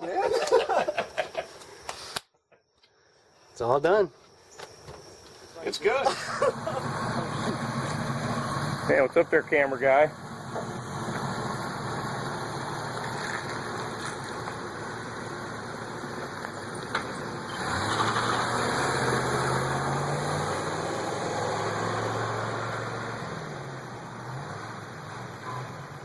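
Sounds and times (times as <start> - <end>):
car engine idling: 5.7 - 26.0.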